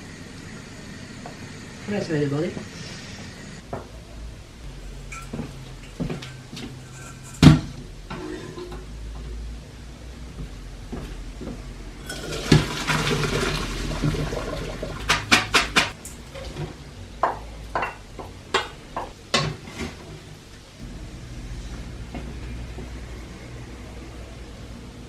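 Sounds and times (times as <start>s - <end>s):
pots and utensils knocking: 5.0s - 8.9s, 14.0s - 20.1s
water splashing into sink: 12.0s - 16.6s.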